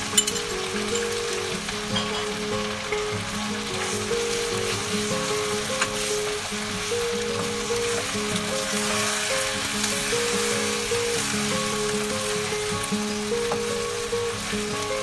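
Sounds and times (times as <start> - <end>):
background music: 0.0 - 15.0
food sizzling in oil: 0.0 - 15.0.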